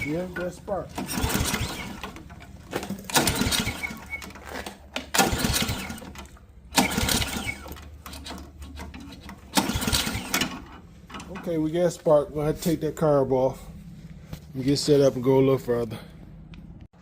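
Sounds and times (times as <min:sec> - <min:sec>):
engine pull-starter whirring: 0:00.0 - 0:11.8.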